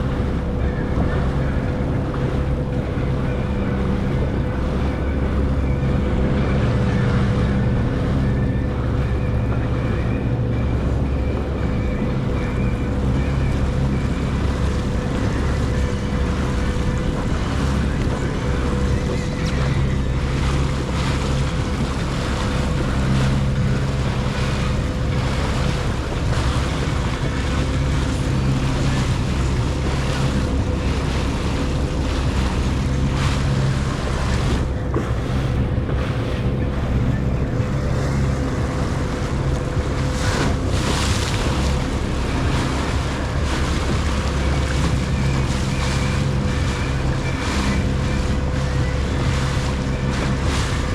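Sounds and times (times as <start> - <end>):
jet ski engine running: 0.0 - 50.9
wind and water spray rushing: 10.7 - 50.9.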